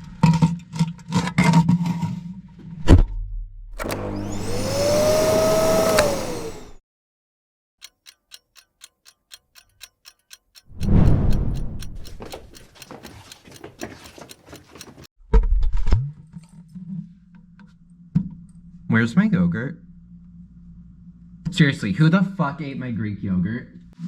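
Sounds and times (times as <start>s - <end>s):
clock ticking quickly: 7.8s - 15.1s
heavy low thump: 10.8s - 12.5s.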